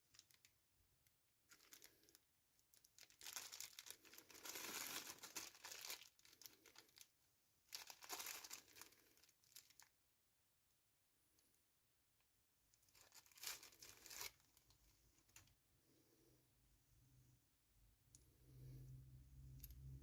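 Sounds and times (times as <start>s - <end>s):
packaging crinkling and rustling: 0.0s - 0.5s, 1.4s - 7.1s, 7.7s - 9.9s, 12.8s - 15.5s.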